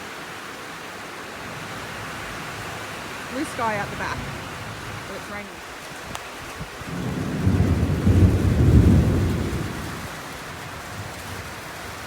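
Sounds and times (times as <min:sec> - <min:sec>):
light rain hissing: 0:01.4 - 0:12.0
thunder rumbling: 0:03.3 - 0:05.4, 0:06.6 - 0:11.7.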